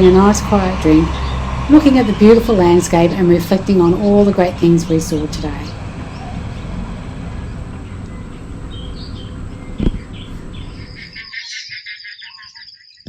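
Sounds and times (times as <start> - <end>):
steady rushing noise: 0.0 - 11.2
dawn chorus of birds: 0.0 - 13.0
rapid pulsed insect chirping: 4.6 - 13.0
bird chirps: 7.3 - 13.0
thump: 9.8 - 10.1.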